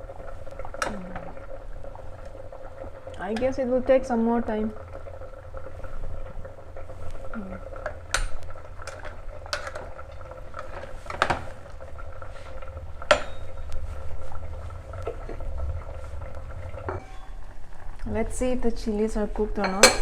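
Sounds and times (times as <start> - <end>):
pot boiling rumble: 0.0 - 20.0
utensil clinking against pot: 13.1 - 13.6, 19.6 - 20.0.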